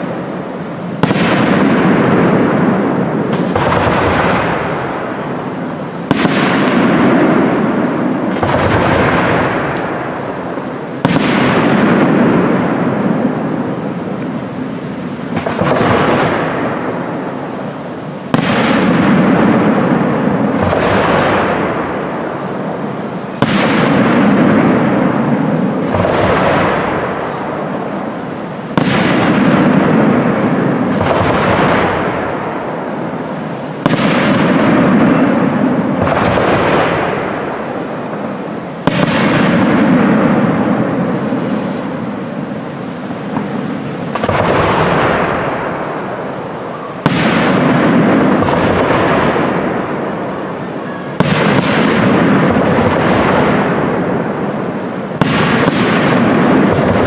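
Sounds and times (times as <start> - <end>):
firework shells bursting: 0.0 - 57.0.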